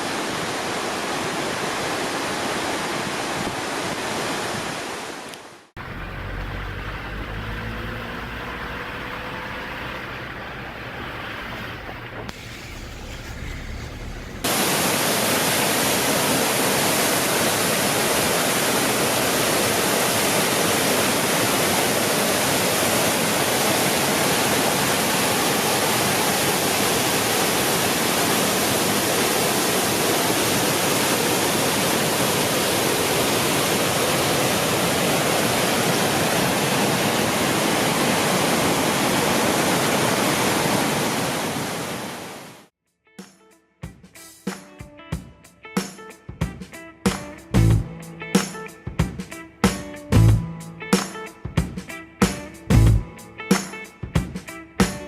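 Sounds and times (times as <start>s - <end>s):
mountain stream rushing: 0.0s - 42.7s.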